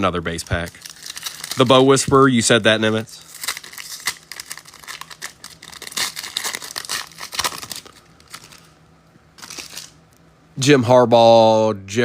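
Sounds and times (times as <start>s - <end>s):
foil wrapper crinkling: 0.0s - 8.8s, 9.4s - 10.0s.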